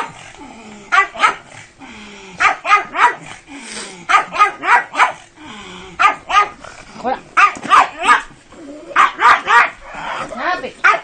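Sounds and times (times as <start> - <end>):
dog barking sharply: 4.1 - 5.2, 6.0 - 6.6, 7.4 - 8.3, 9.0 - 9.8.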